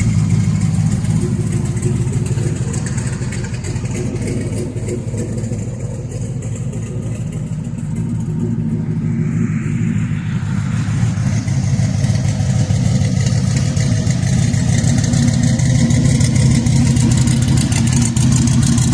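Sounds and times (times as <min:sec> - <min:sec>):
car engine droning: 0:00.0 - 0:18.9.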